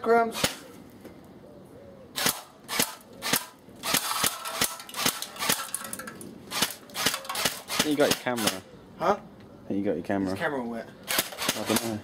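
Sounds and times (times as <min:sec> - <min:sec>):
airsoft rifle shots: 0:00.3 - 0:00.7, 0:02.2 - 0:05.7, 0:06.5 - 0:08.6, 0:11.1 - 0:12.0.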